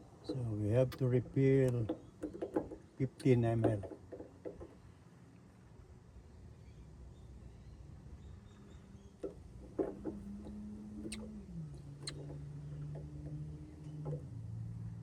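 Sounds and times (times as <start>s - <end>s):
light clicks and knocks: 0.2s - 4.8s, 9.2s - 11.3s.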